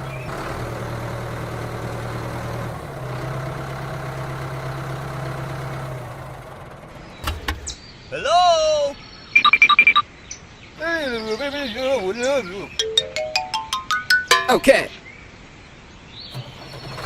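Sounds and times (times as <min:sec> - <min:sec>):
engine idling hum: 0:00.0 - 0:08.1, 0:16.3 - 0:17.0.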